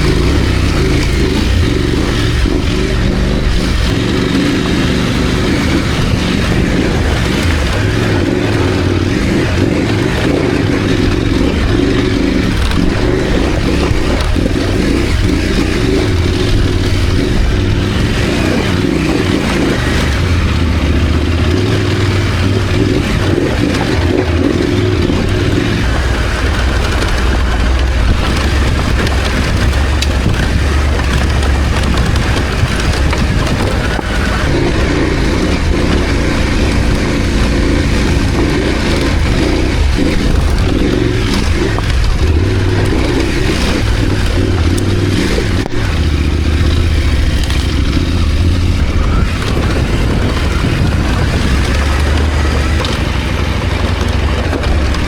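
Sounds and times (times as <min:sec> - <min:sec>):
motorcycle engine under load: 0:00.0 - 0:55.0.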